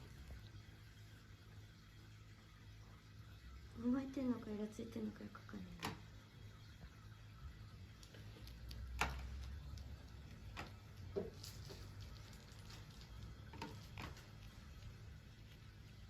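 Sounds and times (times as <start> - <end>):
faint clicks and taps: 7.9 - 15.6.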